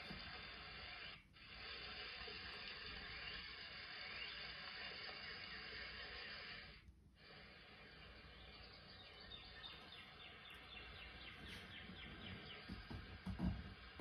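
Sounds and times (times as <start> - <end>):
faint high chirps: 2.3 - 6.5, 7.6 - 13.2.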